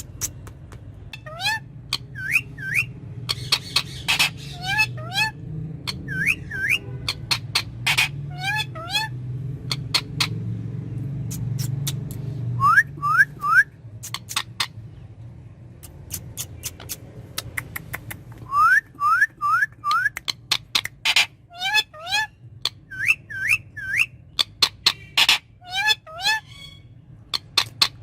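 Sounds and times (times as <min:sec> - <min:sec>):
parakeet chirping: 0:01.0 - 0:28.0
parakeet rising whistles: 0:02.1 - 0:03.0, 0:06.0 - 0:06.8, 0:12.6 - 0:13.8.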